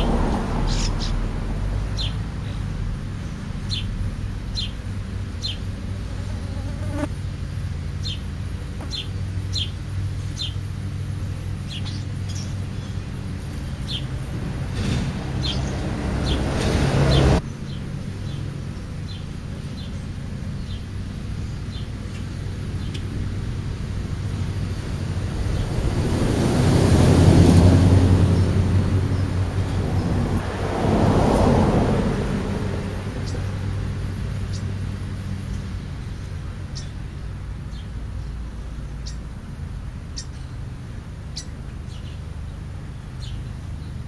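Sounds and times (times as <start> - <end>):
low outdoor rumble: 0.0 - 44.0
small bird chirping: 8.0 - 10.7, 11.6 - 14.2, 35.5 - 37.0, 37.7 - 39.4, 40.1 - 40.7, 41.3 - 44.0
rushing noise: 13.2 - 17.4.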